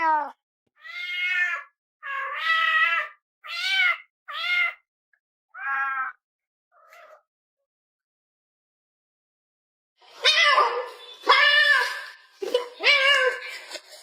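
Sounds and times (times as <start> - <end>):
cat meowing: 0.0 - 4.8, 5.6 - 6.2, 6.8 - 7.2.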